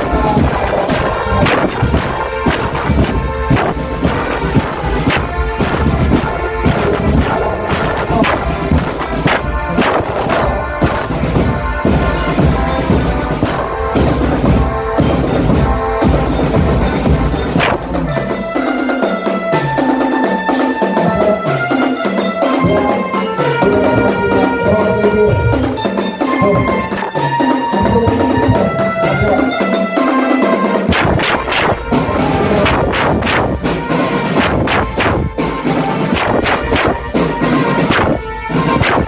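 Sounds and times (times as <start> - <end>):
glockenspiel melody: 0.0 - 30.9
drum strokes: 0.0 - 39.0.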